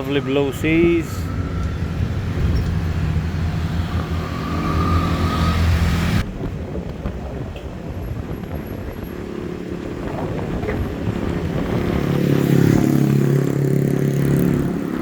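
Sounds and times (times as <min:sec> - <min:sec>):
bus engine droning: 0:00.0 - 0:06.2
outdoor background noise: 0:00.0 - 0:15.0.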